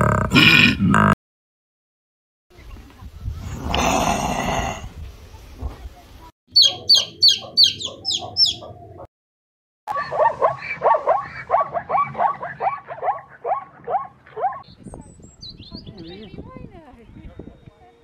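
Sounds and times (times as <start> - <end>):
animal yipping: 6.6 - 8.8, 9.9 - 14.6.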